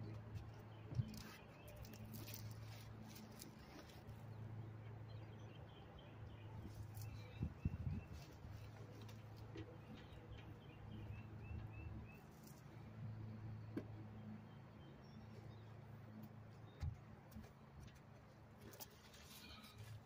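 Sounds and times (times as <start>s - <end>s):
small bird chirping: 5.1s - 8.9s.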